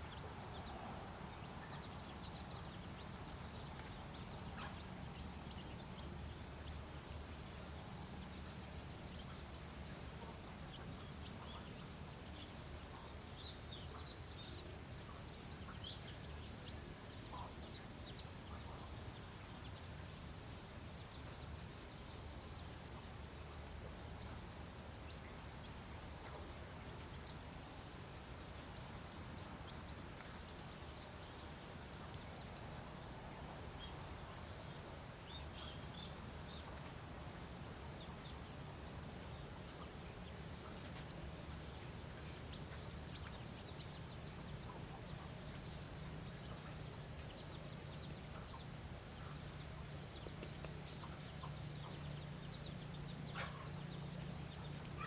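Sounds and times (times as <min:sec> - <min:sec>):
steady high hiss: 0:00.0 - 0:55.0
steady low hum: 0:00.0 - 0:55.0
faint ticks or chirps: 0:01.4 - 0:37.0.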